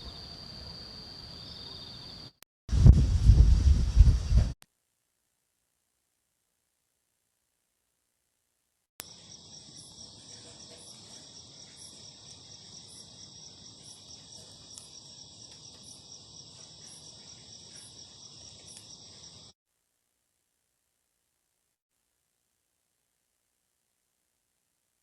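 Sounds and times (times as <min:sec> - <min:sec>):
crickets trilling: 0:00.0 - 0:02.4, 0:09.0 - 0:19.6.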